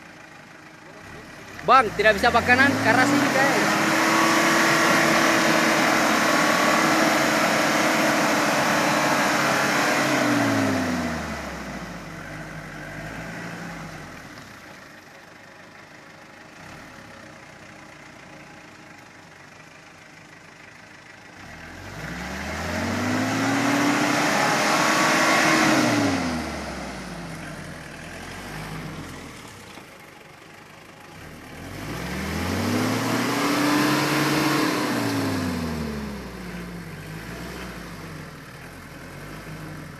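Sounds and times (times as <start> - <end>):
pickup engine revving hard: 1.8 - 14.0, 21.4 - 27.4, 31.6 - 38.3.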